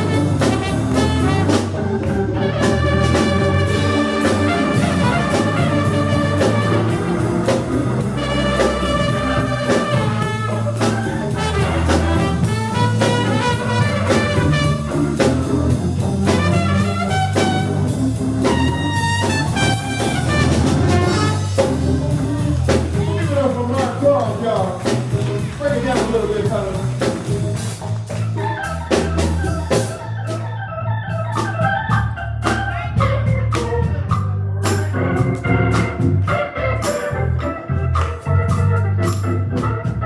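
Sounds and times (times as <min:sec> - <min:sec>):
lead horn melody: 0:00.0 - 0:22.4
bass: 0:00.0 - 0:40.0
drum kit beat: 0:00.0 - 0:40.0.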